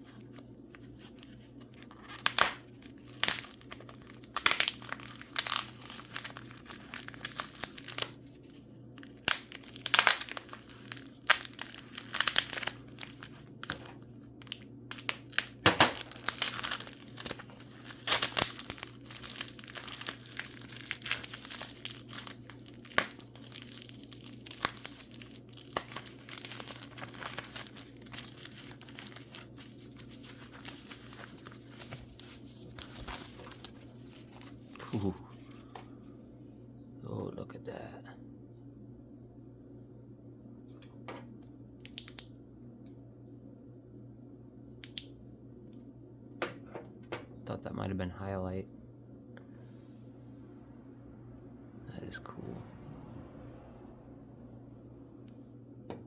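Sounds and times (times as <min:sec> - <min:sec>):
packing wrap crinkling and tearing: 0:00.0 - 0:35.8.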